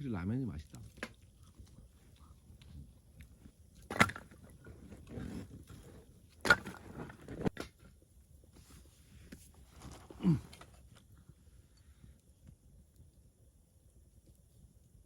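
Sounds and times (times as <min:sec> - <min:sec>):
eating sounds: 0:00.6 - 0:03.4
low grunt: 0:10.1 - 0:10.6.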